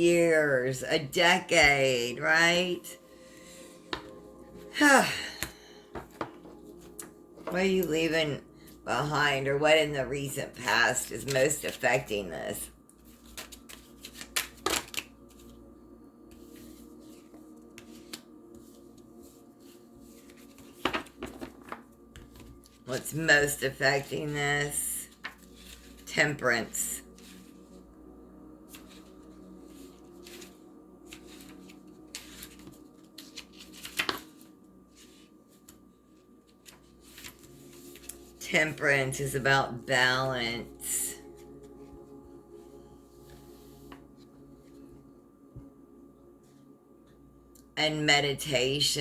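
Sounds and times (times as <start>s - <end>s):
cards being shuffled: 13.0s - 15.6s, 16.3s - 18.8s, 20.1s - 24.1s, 25.2s - 26.1s, 28.7s - 35.8s, 36.5s - 38.3s.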